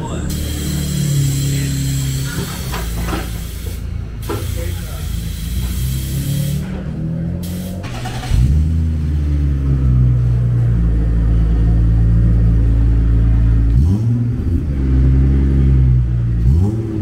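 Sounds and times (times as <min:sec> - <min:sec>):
race car engine idling: 0:00.0 - 0:17.0.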